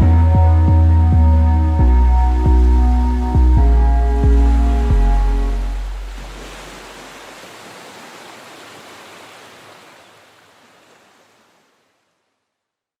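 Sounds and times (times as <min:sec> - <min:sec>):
waterfall rushing: 0:02.4 - 0:11.5.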